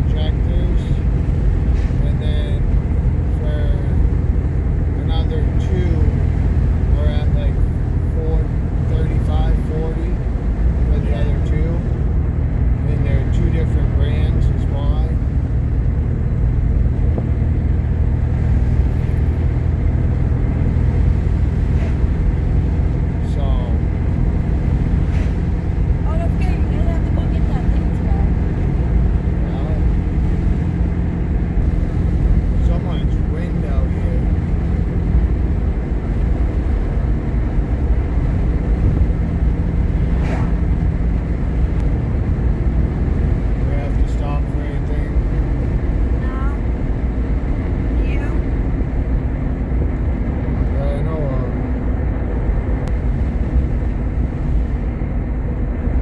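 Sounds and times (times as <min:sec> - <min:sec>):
vehicle engine and road rumble: 0:00.0 - 0:56.0
brief rushing sound: 0:40.0 - 0:41.1.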